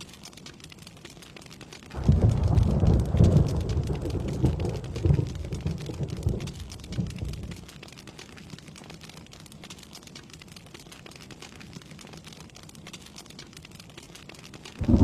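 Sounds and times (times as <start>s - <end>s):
steady rain: 0.0s - 15.0s
thunder rumbling: 1.9s - 7.6s, 14.8s - 15.0s.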